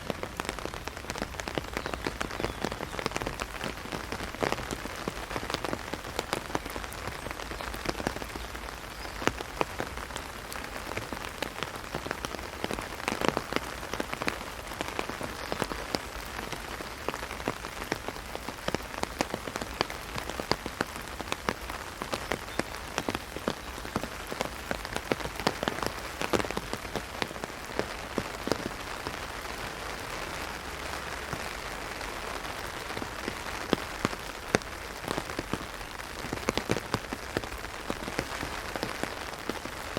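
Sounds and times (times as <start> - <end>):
heavy rain hitting an umbrella: 0.0 - 39.9.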